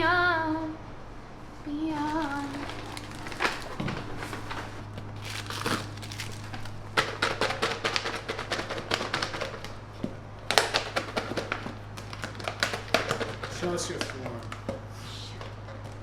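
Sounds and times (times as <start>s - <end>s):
steady low hum: 0.0s - 16.0s
packaging crinkling: 1.9s - 9.8s, 10.4s - 14.7s.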